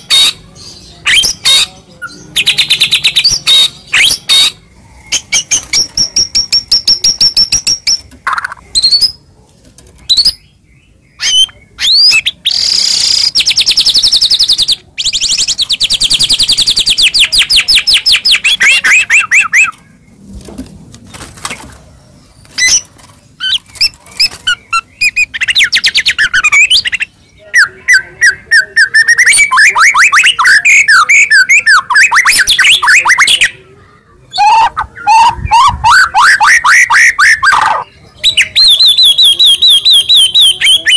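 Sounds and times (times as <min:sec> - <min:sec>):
songbird singing trills: 0:10.0 - 0:20.2, 0:22.1 - 0:40.9.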